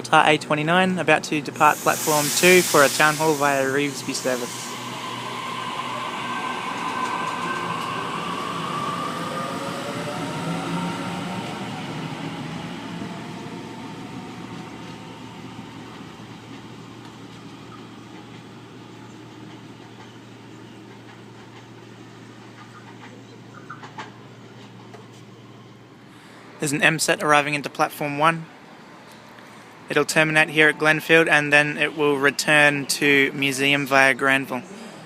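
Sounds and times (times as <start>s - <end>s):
train wheels rumbling: 1.1s - 23.2s
electric train motors whining: 1.6s - 17.5s.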